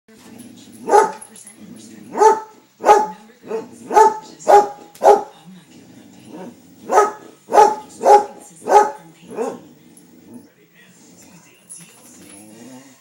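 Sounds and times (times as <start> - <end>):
dog barking: 0.8 - 1.3, 2.1 - 5.4, 6.3 - 9.7.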